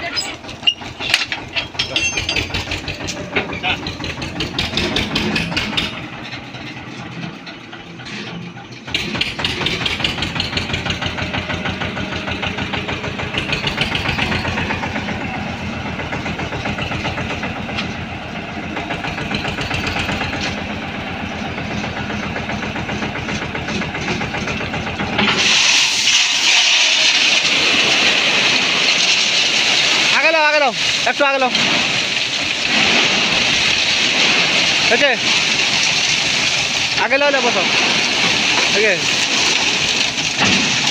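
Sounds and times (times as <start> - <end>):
tractor engine pulsing: 0.0 - 27.1.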